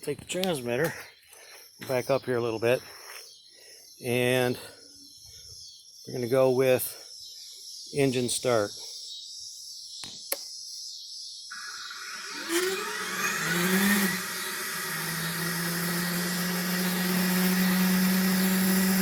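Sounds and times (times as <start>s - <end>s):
simulated jet engine start: 11.5s - 16.6s.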